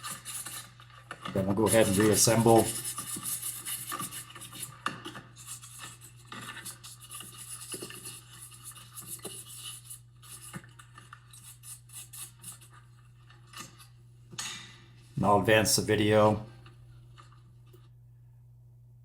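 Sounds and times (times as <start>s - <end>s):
faint low hum: 5.4s - 19.0s.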